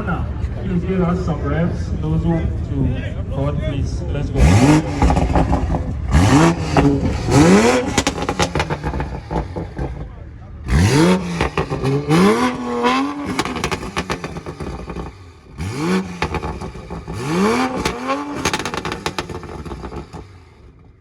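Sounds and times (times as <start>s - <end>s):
car engine revving: 4.1s - 21.0s
exhaust crackling pops: 4.8s - 10.1s, 10.9s - 20.9s.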